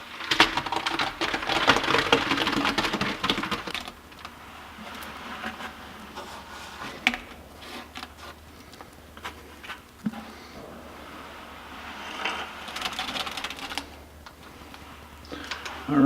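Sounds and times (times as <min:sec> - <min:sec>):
concrete scraping and rattling: 0:00.0 - 0:16.0
wet concrete knocks and scrapes: 0:00.0 - 0:16.0.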